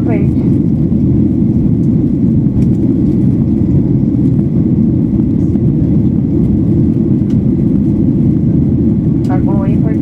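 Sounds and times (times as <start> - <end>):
airplane cabin rumble: 0.0 - 10.0.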